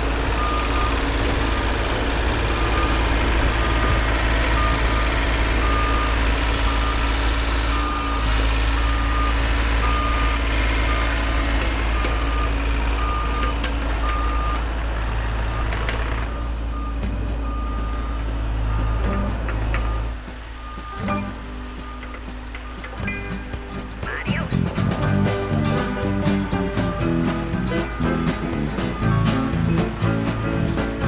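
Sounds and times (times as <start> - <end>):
heavy machine engine running: 0.0 - 31.0
backup alarm beeping: 2.5 - 11.2, 16.3 - 31.0.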